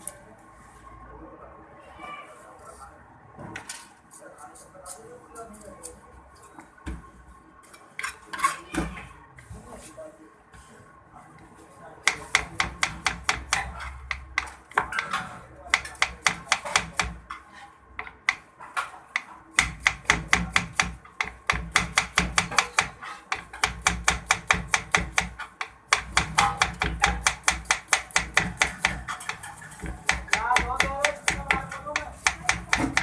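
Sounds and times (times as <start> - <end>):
knife chopping food: 12.0 - 17.3, 19.1 - 33.0.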